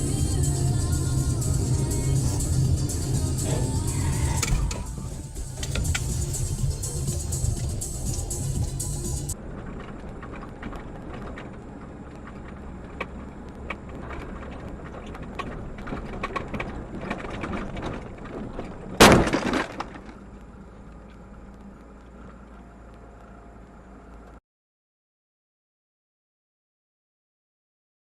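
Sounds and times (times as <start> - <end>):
vehicle noise: 0.0 - 24.4
car crash impact: 18.9 - 20.3.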